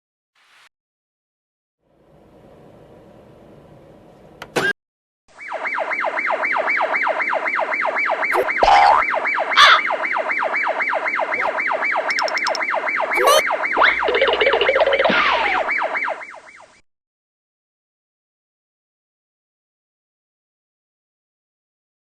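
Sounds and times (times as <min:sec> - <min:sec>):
siren yelping: 0:05.3 - 0:16.8.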